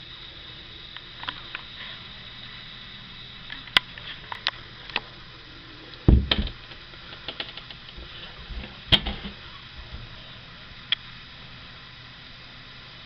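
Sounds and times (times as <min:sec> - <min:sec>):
heavy thud: 0:06.1 - 0:06.6.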